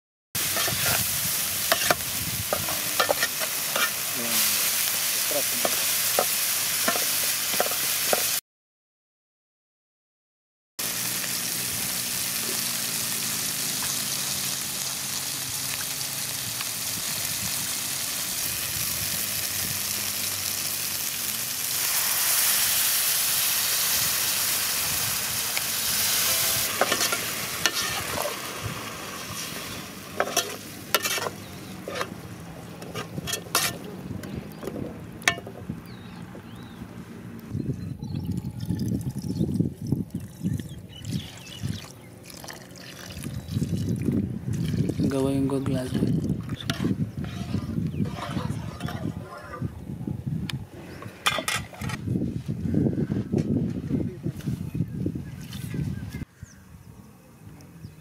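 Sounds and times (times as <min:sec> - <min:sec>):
curry base sizzling in a pot: 0:00.4 - 0:08.4, 0:10.8 - 0:32.2.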